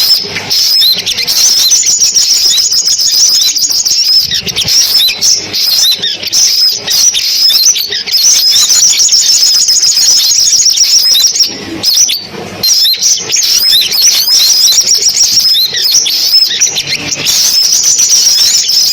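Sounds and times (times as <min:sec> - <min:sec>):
sunbirds chirping and trilling: 0:00.0 - 0:18.9.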